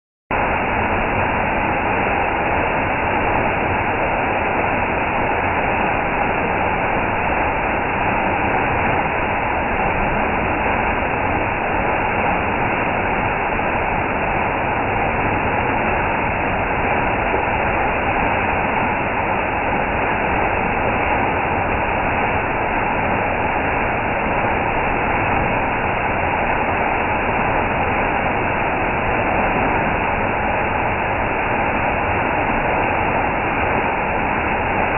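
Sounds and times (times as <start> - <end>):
indoor waterfall rushing: 0.3 - 34.9.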